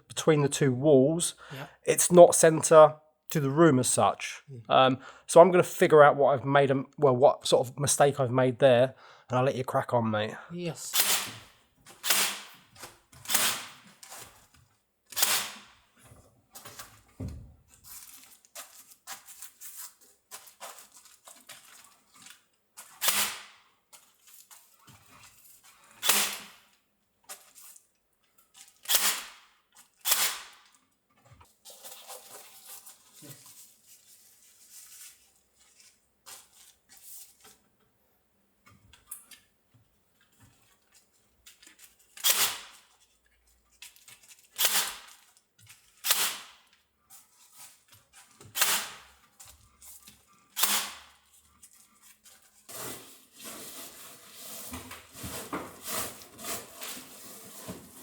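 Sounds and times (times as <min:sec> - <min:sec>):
rustling: 0:31.5 - 0:37.6, 0:51.2 - 0:58.0.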